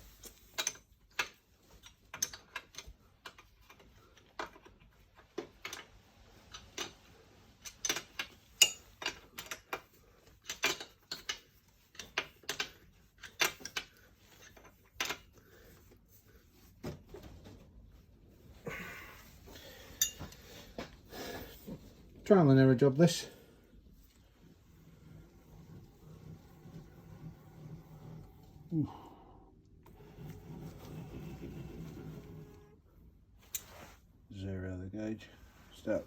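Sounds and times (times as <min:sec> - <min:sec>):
spanners clicking on metal: 0:07.6 - 0:09.8.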